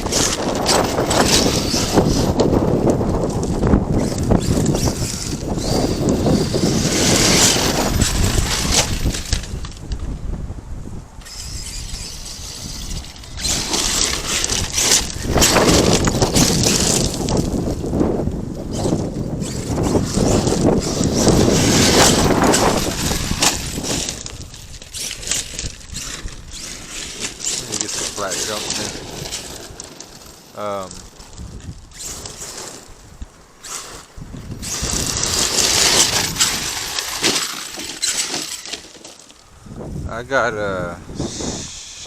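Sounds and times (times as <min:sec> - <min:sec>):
electric motor whining: 0:00.0 - 0:10.1, 0:11.2 - 0:39.9, 0:41.0 - 0:42.0
tyres crunching on stones: 0:00.0 - 0:10.1, 0:11.2 - 0:39.6
rc truck driving over gravel: 0:00.0 - 0:42.0.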